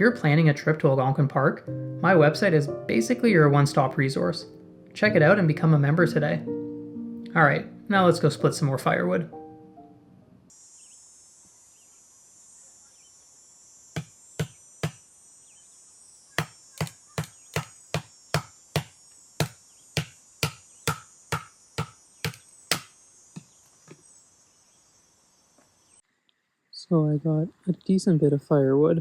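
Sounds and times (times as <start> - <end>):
insects trilling: 10.4 - 28.8
axe chopping firewood: 14.0 - 15.0, 16.4 - 24.0.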